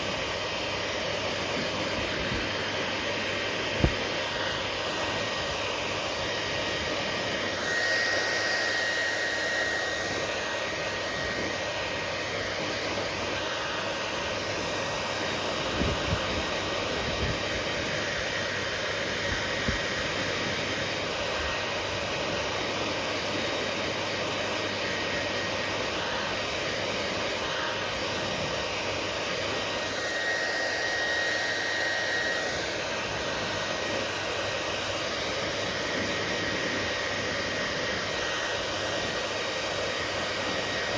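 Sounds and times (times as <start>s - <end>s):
hair dryer blowing: 0.0s - 40.9s
high whine: 1.8s - 20.6s.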